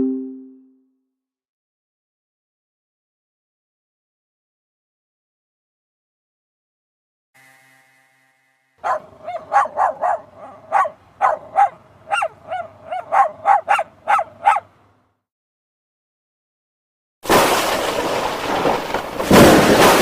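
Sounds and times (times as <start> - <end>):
dog barking: 8.8 - 14.7.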